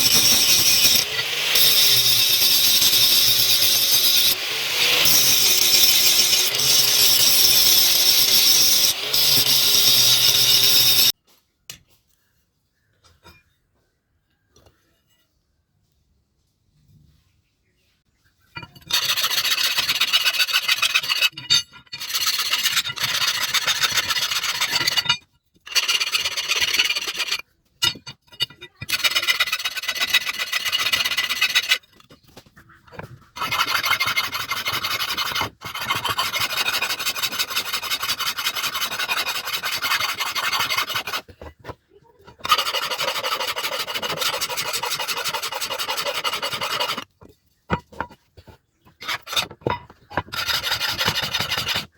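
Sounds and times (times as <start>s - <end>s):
cleaver blade rasping on abrasive: 0.0s - 11.2s, 28.8s - 31.9s, 33.4s - 41.4s, 42.3s - 47.1s, 48.9s - 49.6s, 50.2s - 51.9s.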